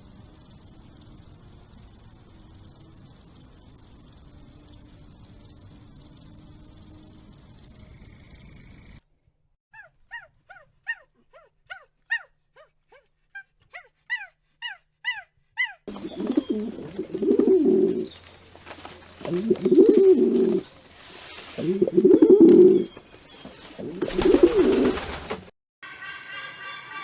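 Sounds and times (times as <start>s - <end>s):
high-pitched insect drone: 0.0s - 9.0s.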